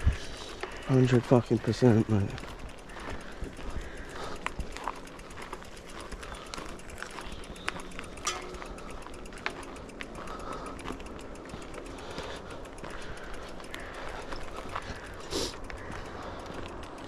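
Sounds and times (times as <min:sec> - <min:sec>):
twigs crackling underfoot: 0:00.0 - 0:17.0.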